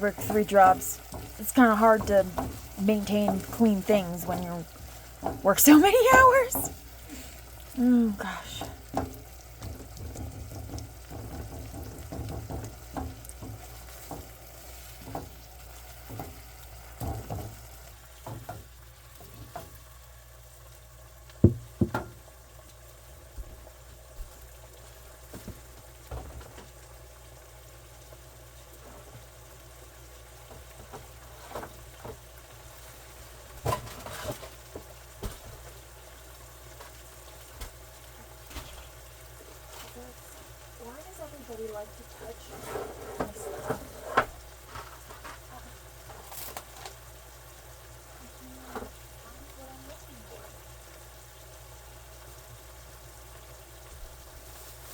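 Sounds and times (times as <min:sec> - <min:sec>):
utensil knocking and scraping pan: 0:00.0 - 0:06.4, 0:08.6 - 0:15.4, 0:17.0 - 0:17.6, 0:42.4 - 0:45.4
food sizzling in a frying pan: 0:00.0 - 0:54.9.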